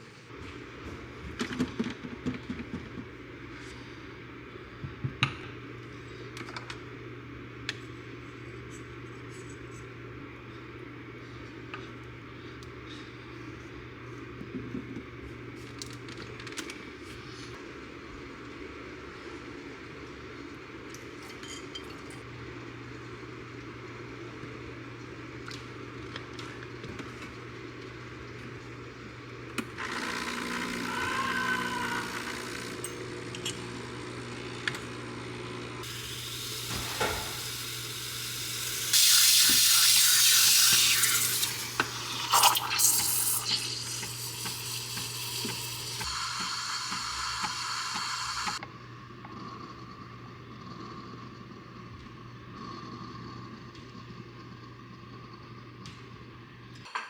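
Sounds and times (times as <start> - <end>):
water running from tap: 35.8 - 48.6.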